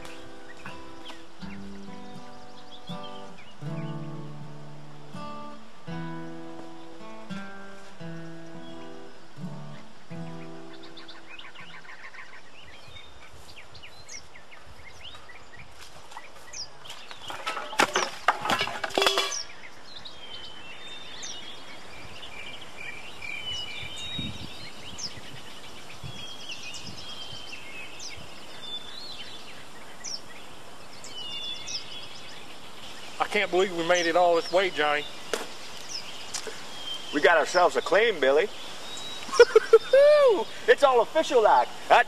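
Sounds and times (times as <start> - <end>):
guitar music: 0.0 - 11.8
birds chirping: 0.0 - 42.0
outdoor background noise: 0.0 - 42.0.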